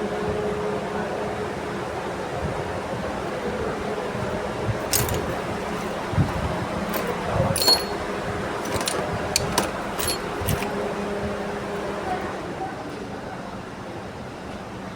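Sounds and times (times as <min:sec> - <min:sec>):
steady mechanical hum: 0:00.0 - 0:12.7
metal parts clinking: 0:04.8 - 0:10.9.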